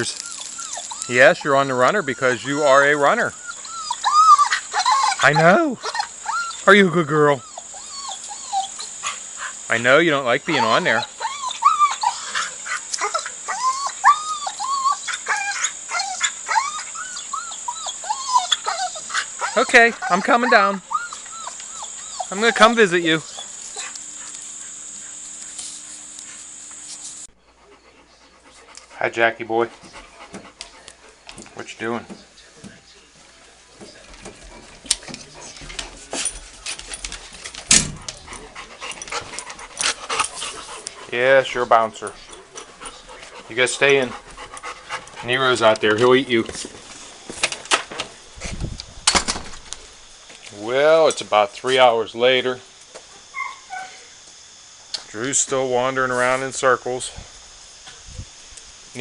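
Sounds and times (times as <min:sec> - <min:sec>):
dog whining: 0:00.0 - 0:09.6, 0:10.3 - 0:25.5, 0:53.2 - 0:54.2.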